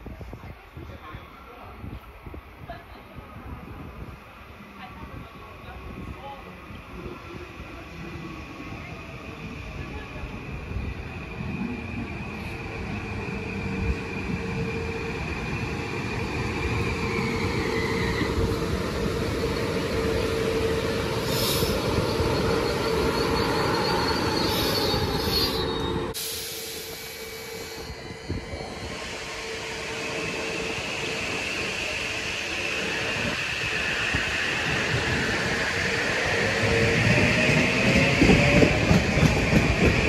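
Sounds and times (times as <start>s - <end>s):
electric train running whine: 7.0s - 40.0s
wheel and brake squeal: 19.3s - 26.2s.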